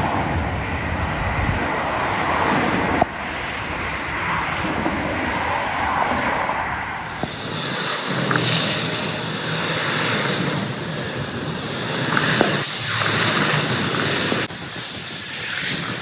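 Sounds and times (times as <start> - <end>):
vehicles passing on highway: 0.0 - 14.5
steady low traffic hum: 0.0 - 15.3.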